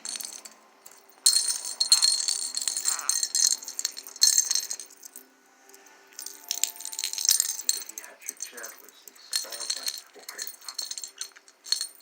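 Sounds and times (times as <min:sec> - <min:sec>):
rattling toy being shaken: 0:00.0 - 0:12.0.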